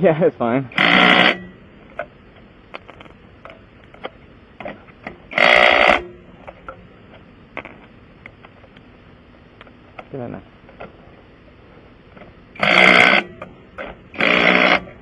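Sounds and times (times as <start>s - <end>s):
impact wrench burst: 0.7s - 1.6s, 5.3s - 6.2s, 12.6s - 15.0s.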